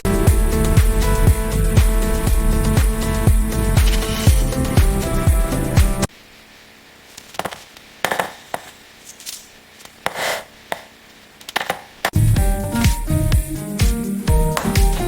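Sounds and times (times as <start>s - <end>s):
background music: 0.0s - 6.1s, 12.2s - 15.0s.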